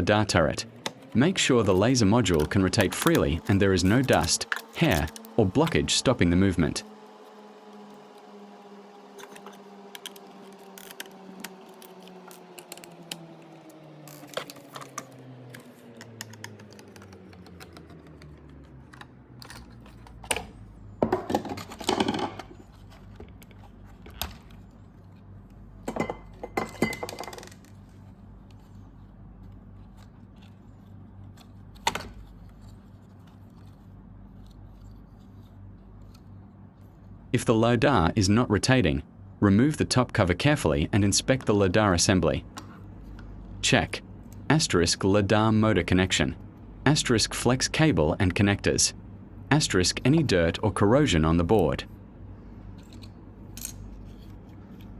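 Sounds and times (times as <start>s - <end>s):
low hum sliding down in pitch: 0.0s - 21.0s.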